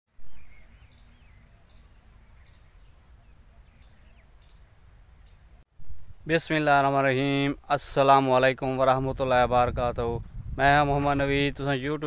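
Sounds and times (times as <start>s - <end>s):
bird chirps: 0.1s - 5.6s
small birds whistling: 0.2s - 5.4s.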